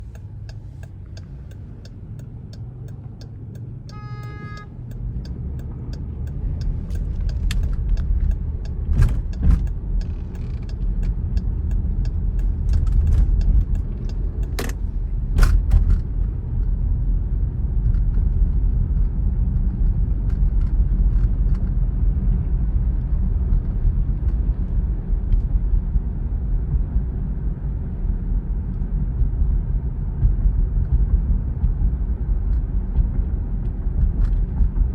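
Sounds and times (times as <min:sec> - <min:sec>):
short pitched beep: 0:03.9 - 0:04.7.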